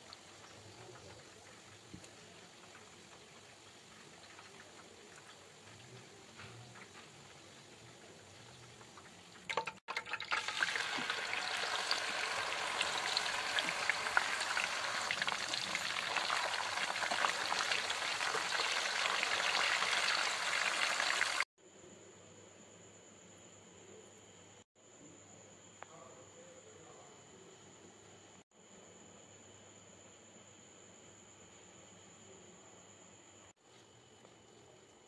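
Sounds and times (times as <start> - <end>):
chicken sizzling in hot oil: 0.0 - 21.5.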